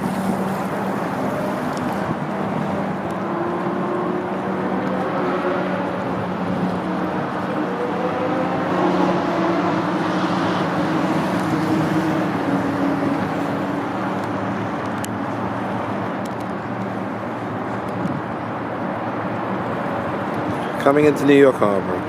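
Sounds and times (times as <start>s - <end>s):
vehicle passing: 0.0s - 16.0s
road traffic noise: 0.0s - 22.0s.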